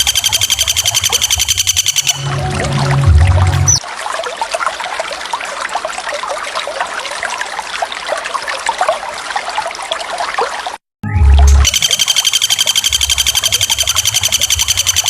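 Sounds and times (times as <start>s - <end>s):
waterfall trickling and splashing: 2.1s - 10.8s.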